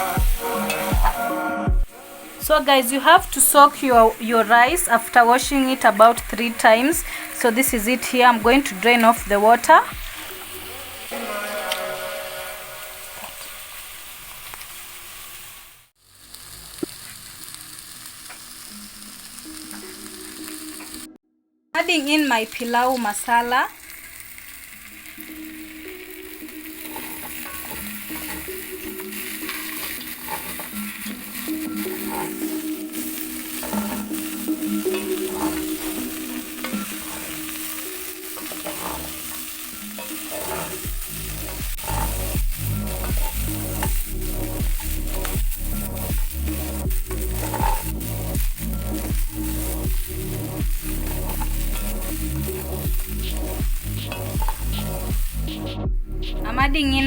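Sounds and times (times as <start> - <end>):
food frying in oil: 0.0 - 21.1, 21.8 - 56.6
spoon scraping a pot: 26.8 - 32.7, 33.5 - 34.3, 34.9 - 37.5, 38.4 - 43.9, 47.4 - 48.0.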